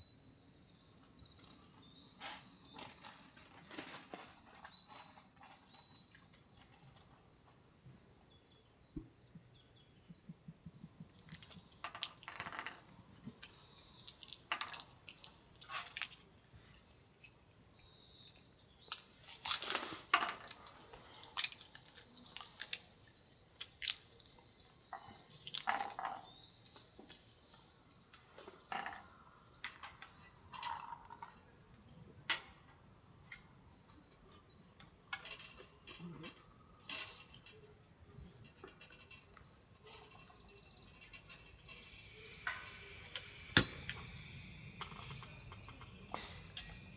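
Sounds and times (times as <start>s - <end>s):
bird chirps: 39.4s - 46.9s.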